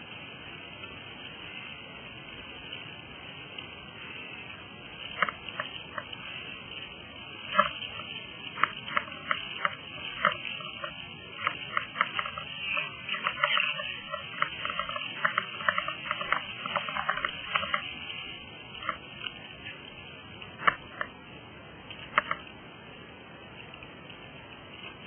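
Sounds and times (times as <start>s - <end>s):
river water gurgling against a kayak: 4.0s - 21.2s.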